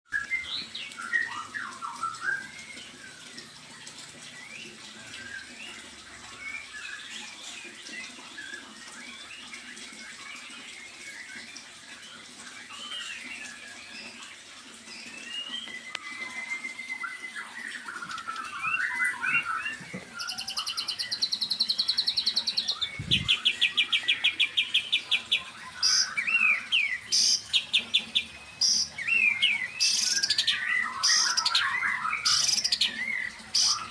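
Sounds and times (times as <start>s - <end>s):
songbirds chirping and twittering: 0.1s - 33.9s
sharp loud bird calls: 17.1s - 33.9s
fast rattling bird trills: 17.6s - 33.9s.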